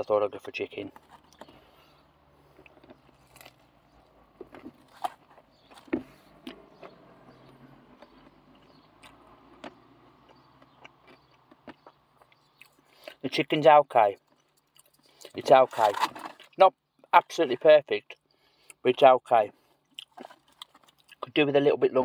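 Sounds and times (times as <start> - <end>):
chewing fried chicken: 6.5 - 13.2, 14.2 - 15.4, 19.6 - 21.4.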